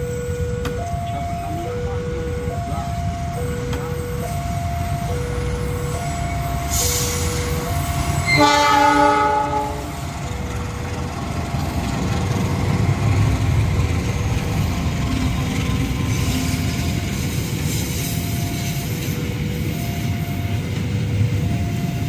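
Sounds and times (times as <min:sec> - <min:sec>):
level crossing warning signal: 0:00.0 - 0:22.0
low rumble of train: 0:00.0 - 0:22.0
train horn: 0:08.2 - 0:10.0.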